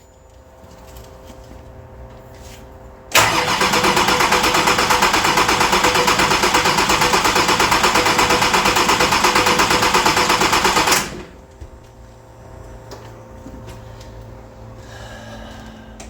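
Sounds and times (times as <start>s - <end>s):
rapid rhythmic mechanical clatter: 3.6s - 11.3s.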